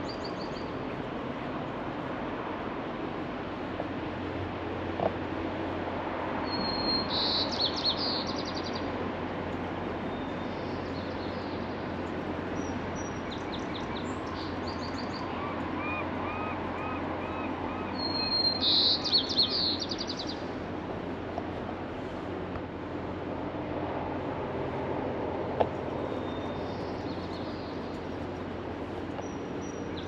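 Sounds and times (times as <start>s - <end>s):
songbird singing: 0.0s - 0.8s, 6.4s - 8.9s, 10.0s - 20.6s, 25.8s - 30.0s
steady background hum: 0.0s - 30.0s.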